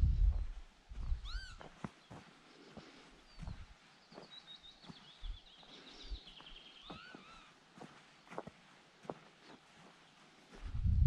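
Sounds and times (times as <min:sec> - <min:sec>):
footsteps on dirt and grass: 0:00.0 - 0:10.8.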